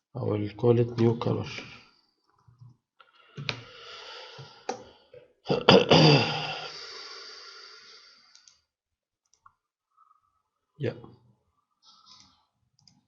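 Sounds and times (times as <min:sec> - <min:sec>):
man breathing and sighing: 0:03.1 - 0:05.3, 0:06.0 - 0:08.3.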